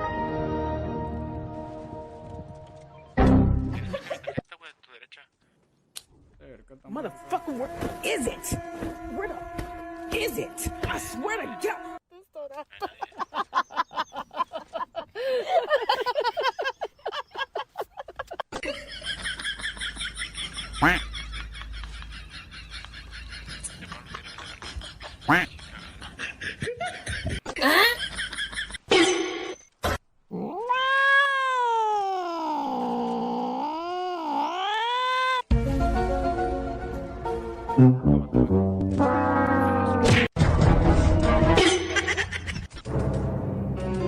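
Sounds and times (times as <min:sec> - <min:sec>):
cat yowling: 0:30.3 - 0:35.5.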